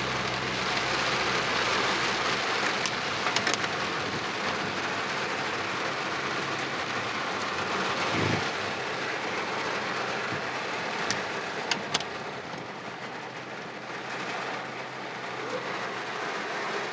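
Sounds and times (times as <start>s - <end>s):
heavy rain hissing: 0.0s - 16.9s.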